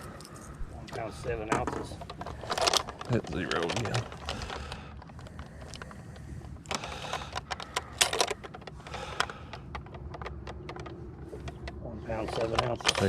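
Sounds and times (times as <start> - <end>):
hands handling small hard gear: 0.0 - 13.0.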